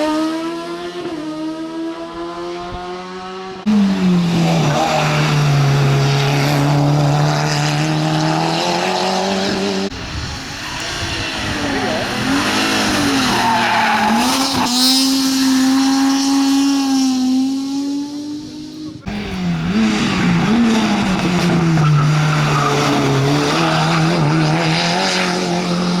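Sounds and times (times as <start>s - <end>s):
rally car engines at high revs: 0.0s - 26.0s
tyres squealing: 10.0s - 15.2s, 19.1s - 24.5s.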